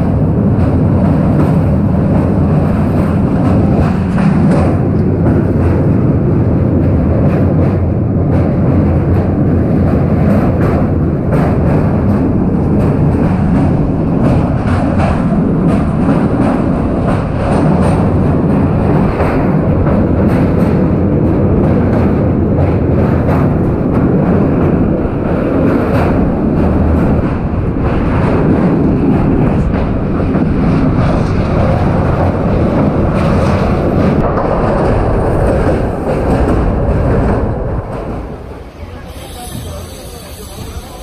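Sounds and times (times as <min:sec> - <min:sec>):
train wheels rumbling on rails: 0:00.0 - 0:41.0.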